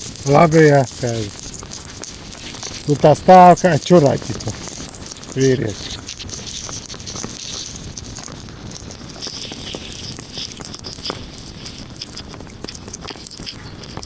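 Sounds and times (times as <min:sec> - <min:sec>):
heavy rain pattering: 0:00.0 - 0:14.0.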